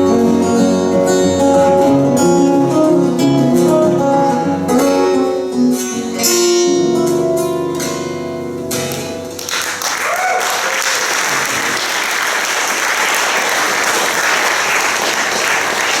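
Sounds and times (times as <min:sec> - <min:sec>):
fingerpicked guitars playing: 0:00.0 - 0:09.7
audience applauding: 0:09.4 - 0:16.0.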